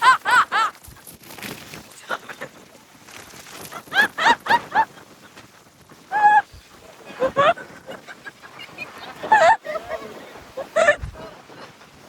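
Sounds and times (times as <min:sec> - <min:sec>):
woman laughing: 0:00.0 - 0:00.8, 0:03.9 - 0:05.0, 0:07.1 - 0:11.4.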